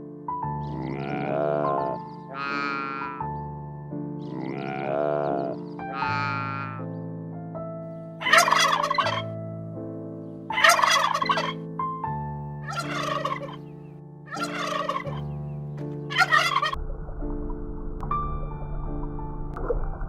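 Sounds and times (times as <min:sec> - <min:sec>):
background music with held notes: 0:00.0 - 0:20.0
bird calling: 0:00.7 - 0:03.2, 0:08.2 - 0:09.3, 0:10.5 - 0:11.6, 0:12.7 - 0:16.8.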